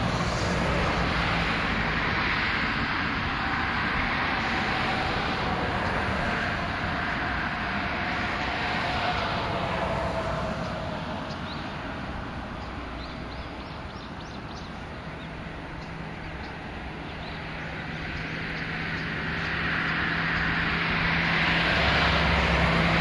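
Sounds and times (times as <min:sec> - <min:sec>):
traffic passing: 0:00.0 - 0:23.0
bird chirps: 0:11.2 - 0:11.8, 0:12.6 - 0:20.6.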